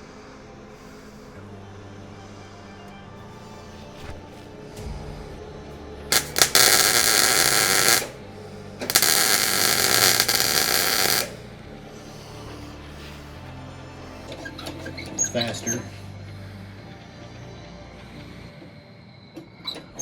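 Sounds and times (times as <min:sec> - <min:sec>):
background music: 0:00.0 - 0:20.0
loud hissing bursts: 0:06.1 - 0:08.2, 0:08.8 - 0:11.4.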